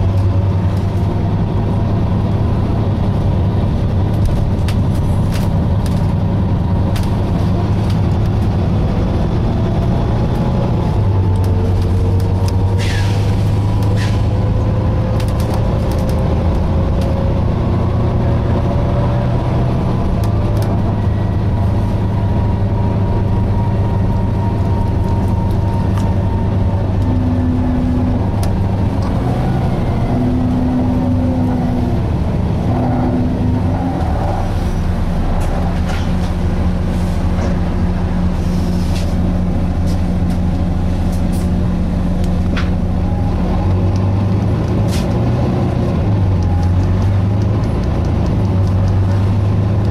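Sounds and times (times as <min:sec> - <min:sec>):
bus diesel engine droning: 0:00.0 - 0:49.9
rattles and clicks: 0:09.8 - 0:17.2.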